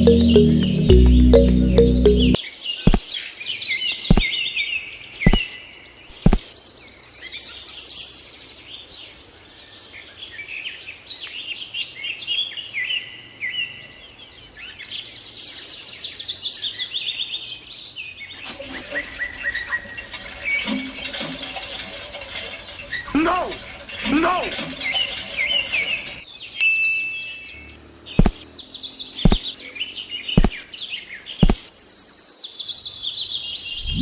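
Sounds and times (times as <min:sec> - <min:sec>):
small birds chirping: 0:02.8 - 0:08.7, 0:27.4 - 0:34.0
sharp clicks: 0:05.3 - 0:05.5, 0:06.1 - 0:06.4, 0:28.2 - 0:28.4, 0:29.3 - 0:29.5, 0:30.4 - 0:30.6.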